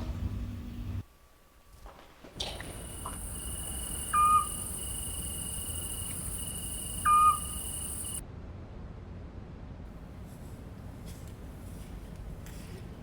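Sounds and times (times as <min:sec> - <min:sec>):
insects trilling: 0:02.4 - 0:08.2
owl hooting: 0:02.5 - 0:08.2.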